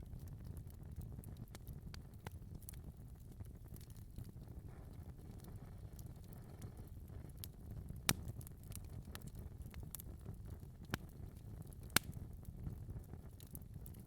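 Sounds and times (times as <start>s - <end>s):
low rumble of flames: 0.0s - 14.0s
wood fire crackling: 0.0s - 14.0s
sharp pops of burning wood: 5.2s - 14.0s.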